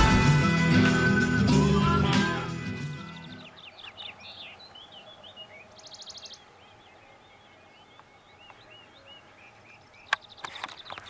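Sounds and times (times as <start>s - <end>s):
small birds chirping and trilling: 3.0s - 11.0s.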